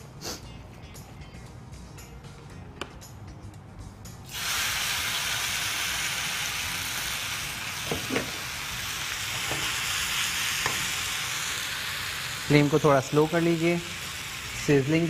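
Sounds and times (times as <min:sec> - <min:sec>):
noodles sizzling in hot oil: 0:04.3 - 0:15.0.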